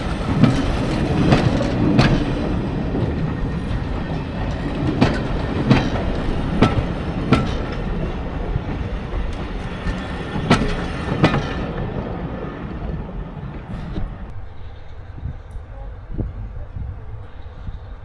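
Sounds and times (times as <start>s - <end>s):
train wheels clacking over rail joints: 0.0s - 12.0s
train rumble: 0.0s - 18.0s.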